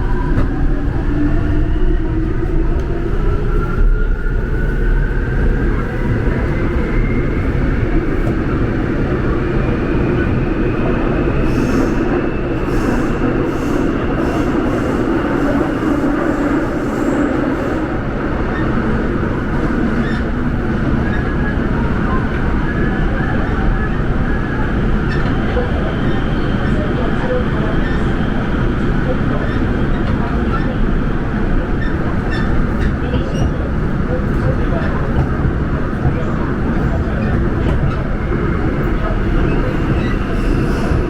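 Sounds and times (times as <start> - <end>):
subway train rumbling: 0.0 - 41.0.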